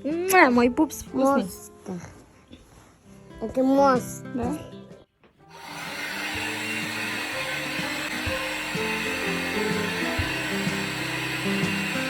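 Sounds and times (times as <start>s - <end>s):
background music: 0.0s - 12.0s
hair dryer blowing: 5.5s - 12.0s.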